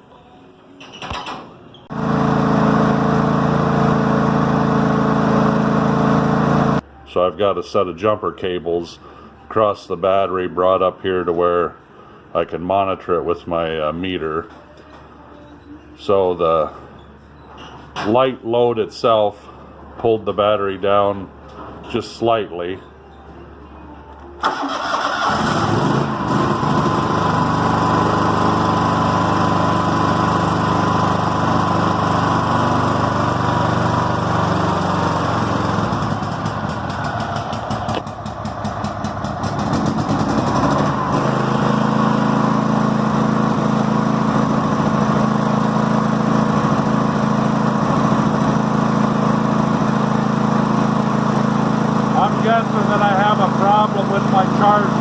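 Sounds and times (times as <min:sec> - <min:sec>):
garden tractor engine running: 0:01.9 - 0:06.8, 0:24.4 - 0:55.0.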